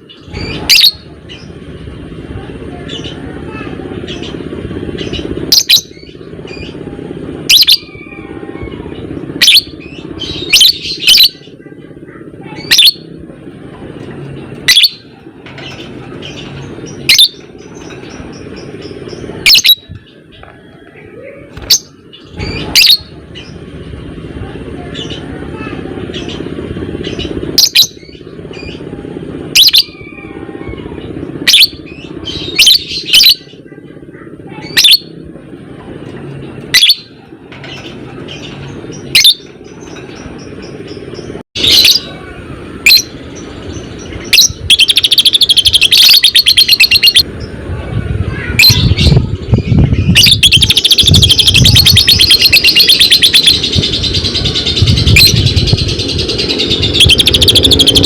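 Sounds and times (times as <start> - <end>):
lovebird chattering trill: 0.1 - 1.5, 5.0 - 6.8, 7.5 - 11.5, 12.5 - 13.1, 14.7 - 20.0, 21.6 - 23.6, 27.0 - 28.8, 29.5 - 30.1, 39.0 - 39.4, 44.1 - 47.2, 48.6 - 58.0.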